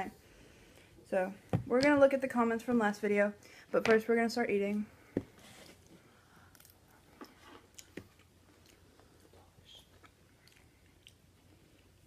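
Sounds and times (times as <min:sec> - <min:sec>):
close-up chewing: 0:05.8 - 0:12.0.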